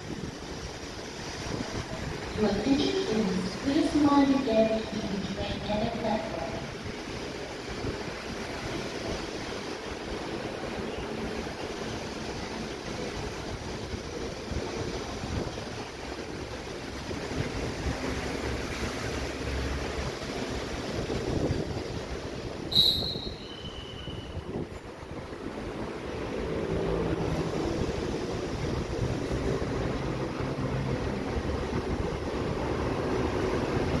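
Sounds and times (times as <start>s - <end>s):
electric train rumbling: 0.0s - 34.0s
sharp high squeal: 22.7s - 24.5s.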